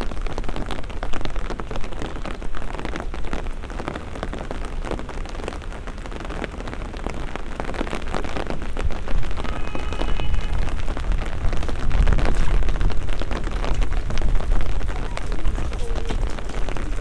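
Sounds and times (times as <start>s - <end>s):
rain falling: 0.0s - 17.0s
low rumble: 8.8s - 17.0s
brief high tone: 9.2s - 11.3s.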